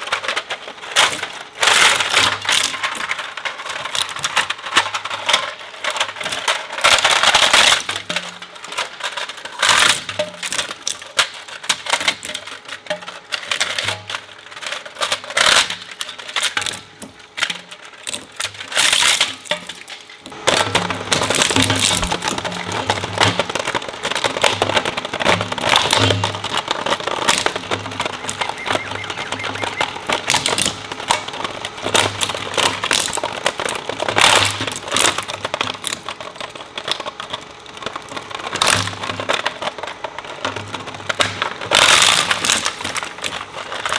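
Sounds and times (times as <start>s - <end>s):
shredder crunching material: 0.0s - 43.9s.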